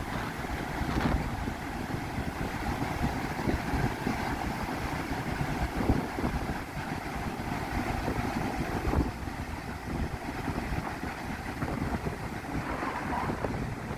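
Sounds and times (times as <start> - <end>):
wind buffeting microphone: 0.0 - 13.9
rough surf rushing: 9.9 - 13.9.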